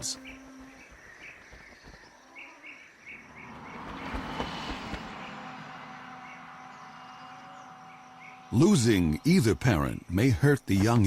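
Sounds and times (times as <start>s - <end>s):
road vehicle passing by: 3.0s - 9.5s.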